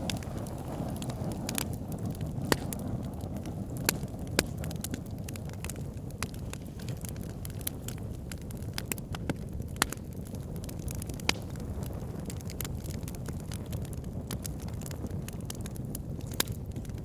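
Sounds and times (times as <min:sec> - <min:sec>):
fire crackling and popping: 0:00.0 - 0:17.0
fire flames rumbling: 0:00.0 - 0:17.0.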